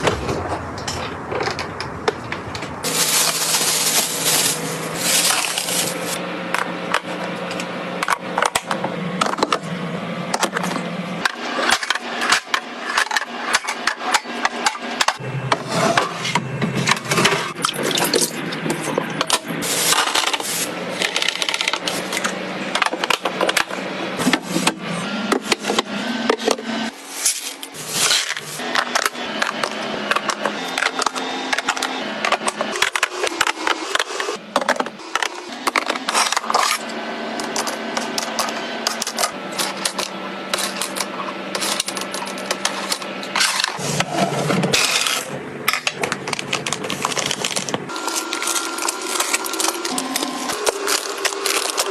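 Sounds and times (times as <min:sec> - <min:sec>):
plastic packaging clatter: 0:02.8 - 0:06.2, 0:17.6 - 0:23.7, 0:34.6 - 0:51.9.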